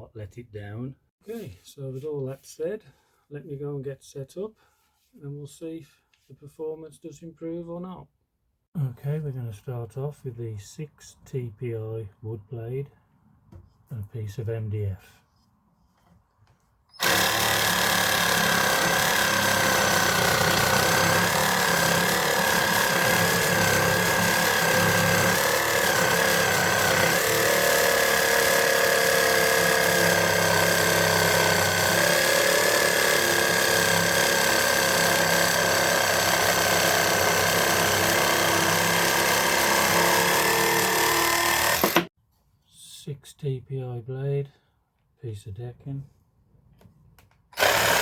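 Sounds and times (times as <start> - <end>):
reciprocating saw cutting wood: 17.0 - 42.1, 47.6 - 48.0.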